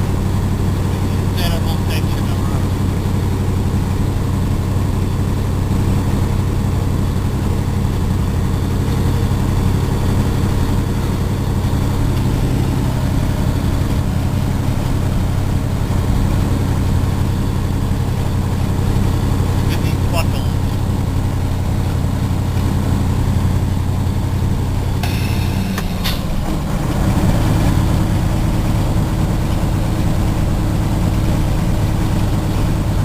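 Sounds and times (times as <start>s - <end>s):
truck diesel engine drone: 0.0s - 33.0s.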